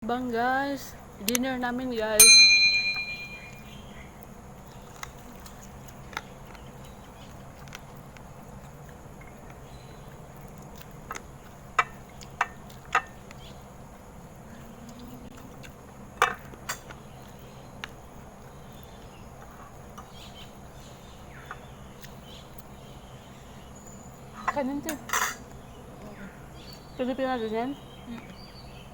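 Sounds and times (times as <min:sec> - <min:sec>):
low background hum: 0:00.0 - 0:28.9
cutlery and dishes clinking: 0:25.1 - 0:25.4.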